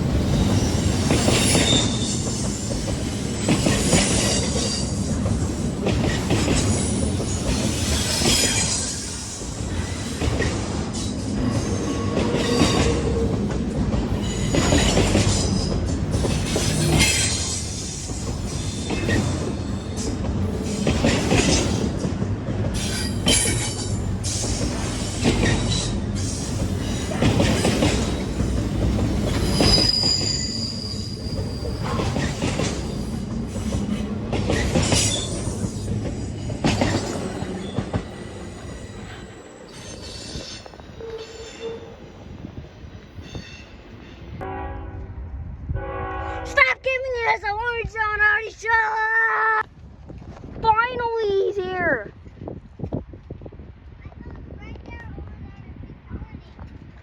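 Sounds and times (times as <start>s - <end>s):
train wheels clanking over joints: 0.0s - 42.0s
high wheel squeal: 0.4s - 2.8s, 29.2s - 33.7s, 37.1s - 42.0s.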